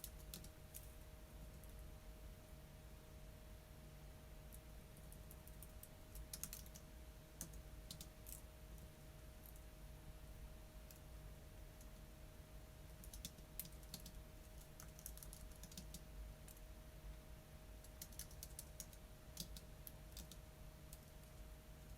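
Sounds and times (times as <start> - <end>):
typing on computer keyboard: 0.0 - 0.5, 5.1 - 6.8, 7.4 - 8.4, 13.0 - 16.6, 17.8 - 21.1
faint hum: 0.0 - 21.9.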